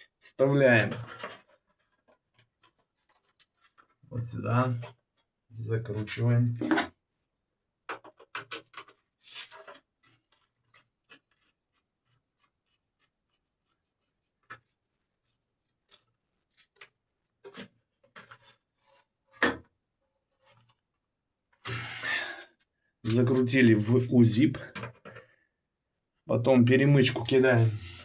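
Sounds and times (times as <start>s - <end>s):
metal scraping on plastic: 0.8s - 4.0s, 7.9s - 21.0s, 27.0s - 28.0s.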